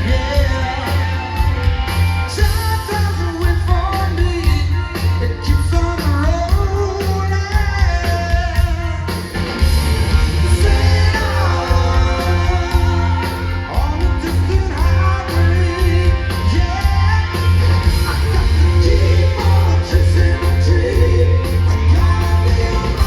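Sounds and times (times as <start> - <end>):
person singing: 0.0 - 1.5, 10.5 - 23.0
bass: 0.0 - 23.0
drums: 0.0 - 23.0
electric guitars: 0.0 - 23.0.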